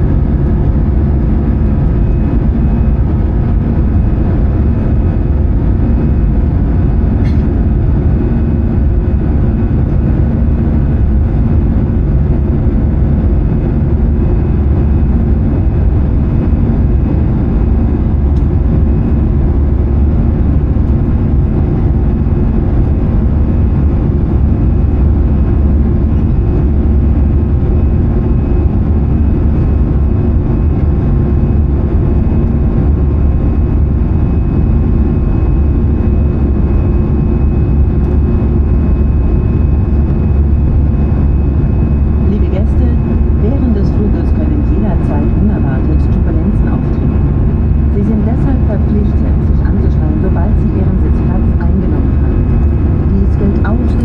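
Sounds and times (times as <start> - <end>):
airplane cabin engine rumble: 0.0 - 54.0
faint steady tones: 41.4 - 54.0.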